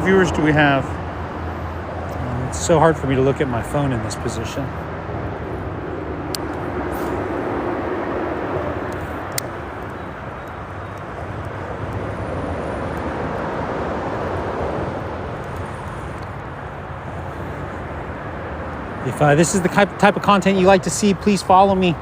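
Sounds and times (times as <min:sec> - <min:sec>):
freeway traffic rumble: 0:00.0 - 0:22.0.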